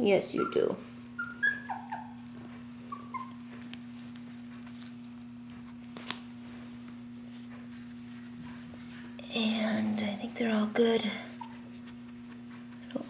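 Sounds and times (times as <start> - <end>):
steady low hum: 0.0 - 13.0
puppies whimpering: 0.3 - 3.6, 11.3 - 12.7.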